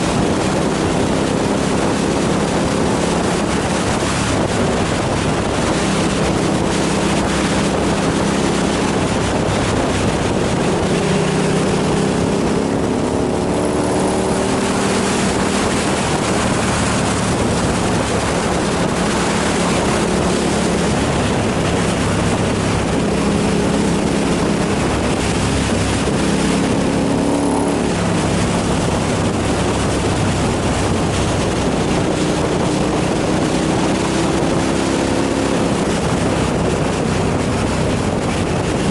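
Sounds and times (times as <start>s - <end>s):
motorcycle engine running: 0.0s - 38.9s
wind rush on microphone: 0.0s - 38.9s.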